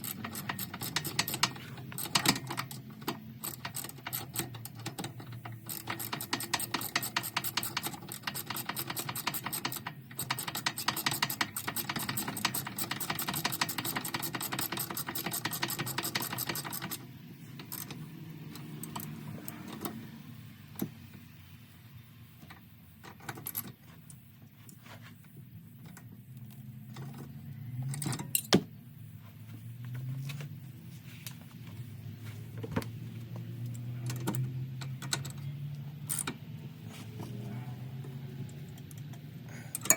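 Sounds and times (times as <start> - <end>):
ratchet wrench clicking: 0.0 - 19.6
tools and parts being handled: 0.0 - 21.4, 22.4 - 39.9.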